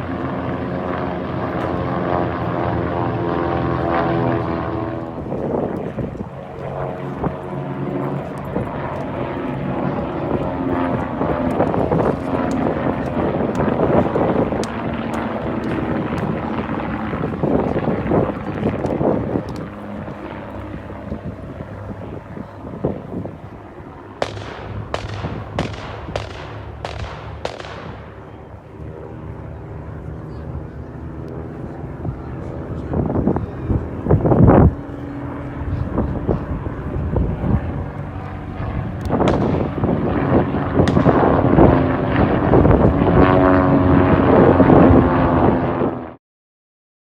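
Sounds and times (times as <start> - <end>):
propeller airplane engine droning: 0.0 - 46.2
sharp bangs with echo: 24.2 - 28.4, 39.2 - 40.2, 40.8 - 41.5.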